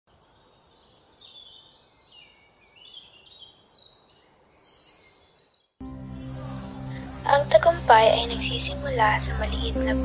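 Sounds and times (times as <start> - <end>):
birds singing and chirping: 0.1 - 7.2
bird trill: 0.2 - 7.1.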